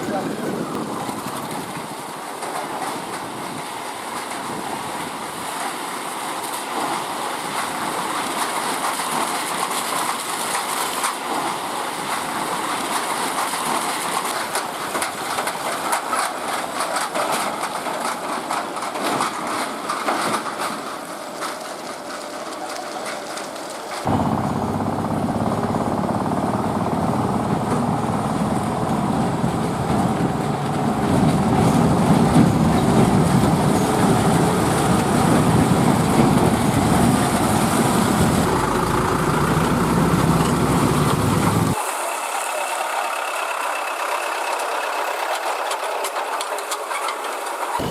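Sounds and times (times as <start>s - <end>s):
truck road and engine noise: 0.0s - 47.9s
truck body rattling and knocking: 24.1s - 41.8s.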